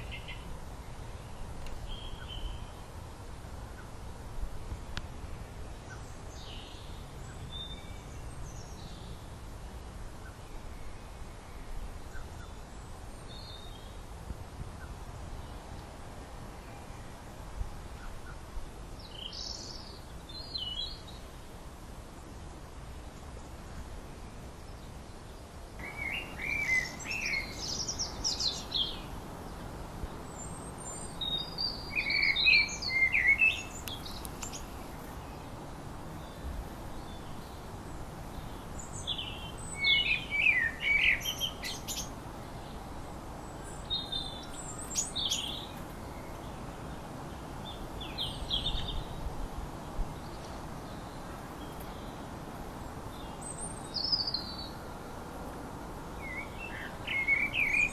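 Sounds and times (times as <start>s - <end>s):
songbird singing: 0.0s - 2.9s, 5.8s - 9.2s, 25.8s - 57.9s
steady background hiss: 0.0s - 57.9s.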